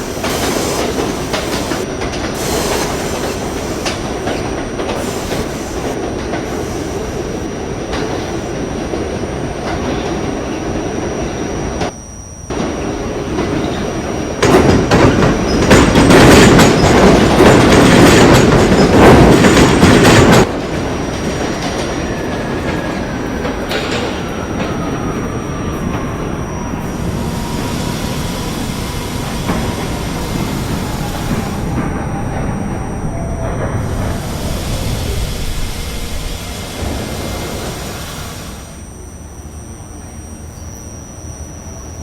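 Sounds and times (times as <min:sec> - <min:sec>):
train wheels rumbling on track: 0:00.0 - 0:39.0
train motor whine falling: 0:00.0 - 0:42.0.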